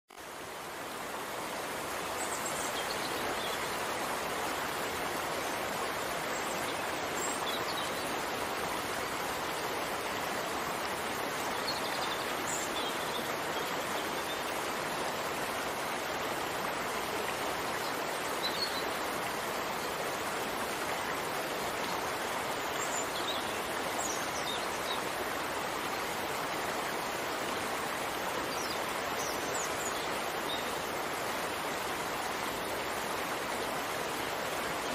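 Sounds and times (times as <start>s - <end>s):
rain falling: 0.2s - 34.9s.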